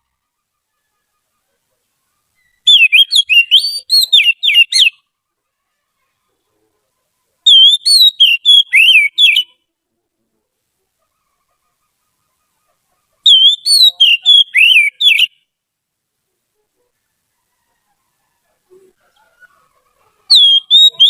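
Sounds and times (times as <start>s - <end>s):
bird singing whistled notes: 2.4s - 5.0s, 7.5s - 9.6s, 13.3s - 15.4s, 20.3s - 21.0s.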